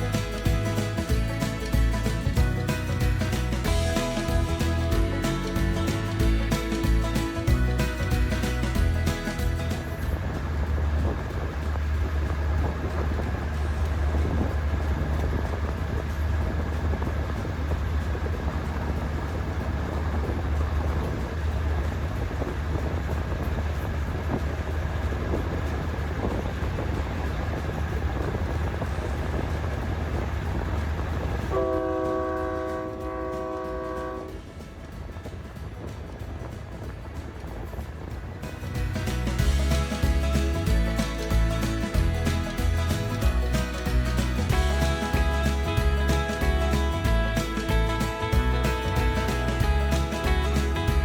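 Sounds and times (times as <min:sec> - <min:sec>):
diesel train engine rumble: 0:00.0 - 0:51.0
rail noise: 0:00.0 - 0:51.0
train horn blast: 0:31.5 - 0:34.4.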